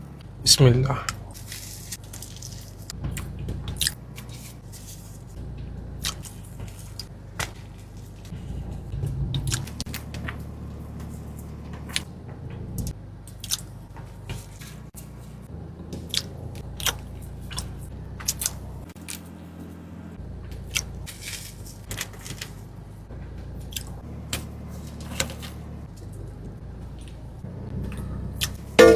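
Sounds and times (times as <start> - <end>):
low steady hum: 0.0 - 28.9
chewing and crunching: 1.3 - 5.3, 6.0 - 10.4, 11.0 - 19.4, 20.4 - 22.9, 23.5 - 24.1.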